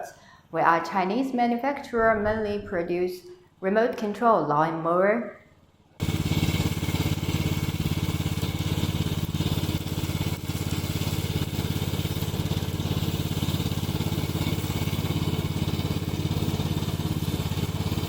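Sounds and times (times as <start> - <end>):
lawn mower petrol engine running: 6.0 - 18.0.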